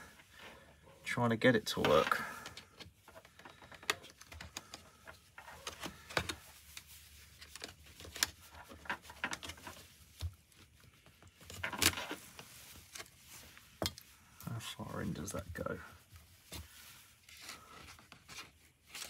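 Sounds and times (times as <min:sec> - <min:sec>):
mount scraping on helmet shell: 0:01.8 - 0:10.4, 0:11.2 - 0:14.1.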